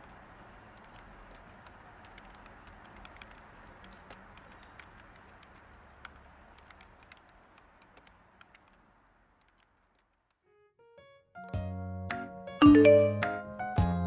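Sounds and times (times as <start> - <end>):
faint clicks: 0.0 - 10.4.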